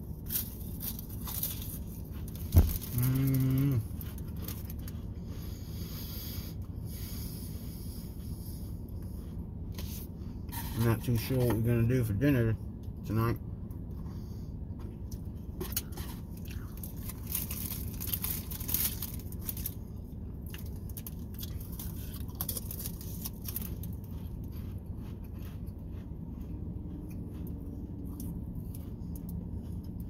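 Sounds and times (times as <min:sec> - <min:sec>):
steady low hum: 0:00.0 - 0:30.0
crackers being chewed: 0:00.1 - 0:05.3, 0:14.8 - 0:30.0.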